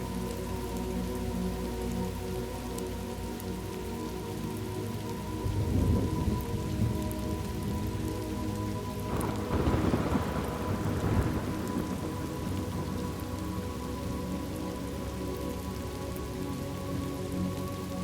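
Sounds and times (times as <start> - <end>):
steady rain falling: 0.0 - 18.0
low thunder rumble: 5.4 - 8.0, 9.0 - 13.6.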